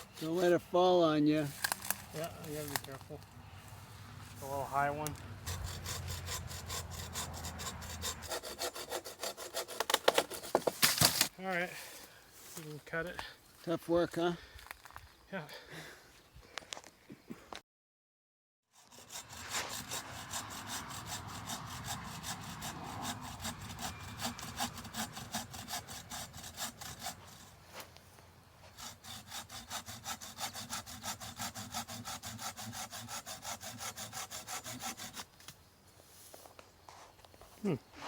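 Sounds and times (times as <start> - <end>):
hand saw cutting branch: 0.0 - 0.7, 1.4 - 3.7, 4.4 - 11.3, 18.8 - 27.9, 28.6 - 35.6.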